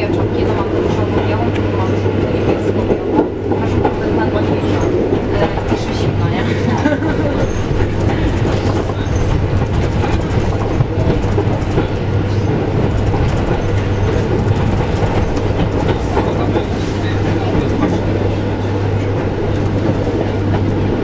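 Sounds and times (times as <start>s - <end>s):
track clickety-clack: 0.0s - 21.0s
train wheels rumbling on rail: 0.0s - 21.0s.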